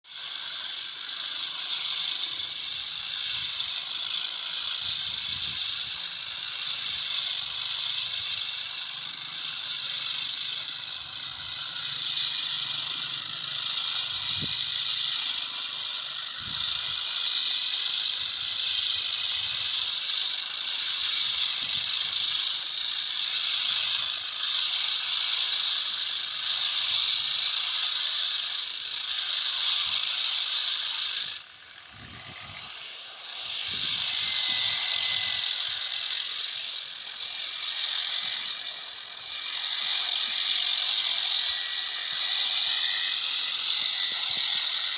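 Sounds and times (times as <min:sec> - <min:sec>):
floor sanding machine hissing: 0:32.2 - 0:44.9.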